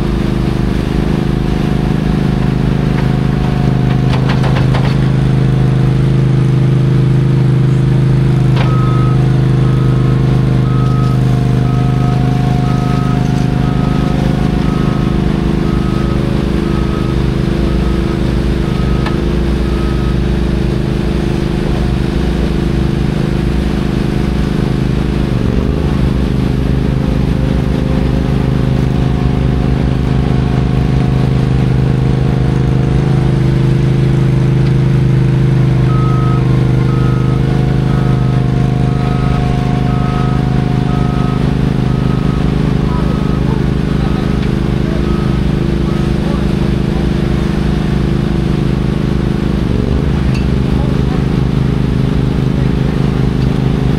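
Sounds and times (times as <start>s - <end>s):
heavy diesel engine running: 0.0s - 53.9s
reversing alarm beeping: 8.4s - 22.1s, 35.7s - 48.6s.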